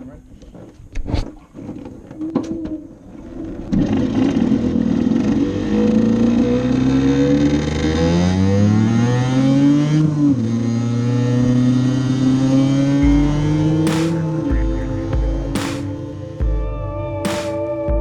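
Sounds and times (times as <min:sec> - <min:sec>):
two-stroke engine accelerating: 0:03.8 - 0:15.6.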